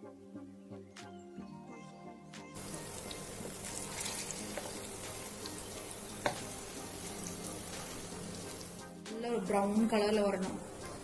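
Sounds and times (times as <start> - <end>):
deep-frying sizzle: 2.6 - 9.0.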